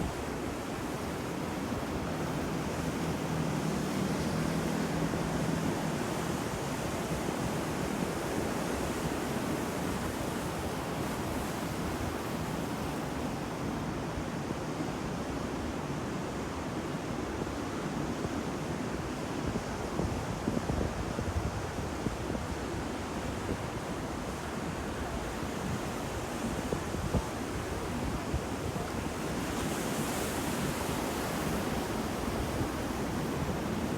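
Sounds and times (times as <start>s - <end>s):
waves breaking: 27.3s - 33.9s.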